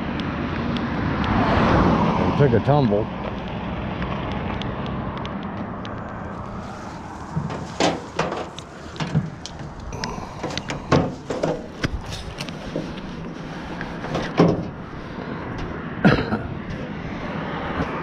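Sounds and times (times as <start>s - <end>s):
vehicle engine rumbling: 0.0s - 18.0s
sharp irregular knocks and clanks: 7.3s - 9.7s, 10.3s - 13.0s, 14.0s - 14.8s.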